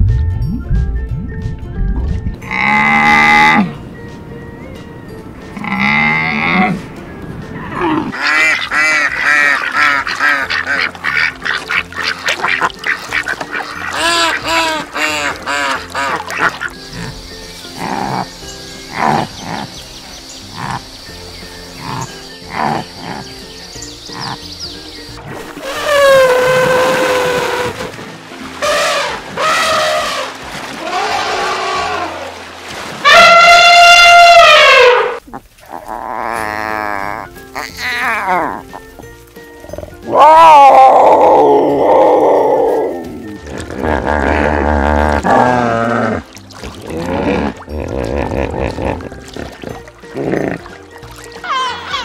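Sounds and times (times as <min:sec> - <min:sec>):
elephants trumpeting: 0:07.7 - 0:19.8, 0:25.6 - 0:38.9, 0:39.7 - 0:52.0
ducks quacking: 0:08.1 - 0:17.2, 0:20.5 - 0:20.9, 0:24.1 - 0:24.5.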